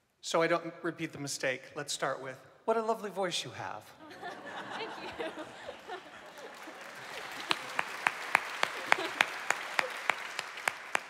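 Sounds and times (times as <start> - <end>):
audience applauding: 5.0 - 11.0
close sharp hand claps: 6.4 - 11.0.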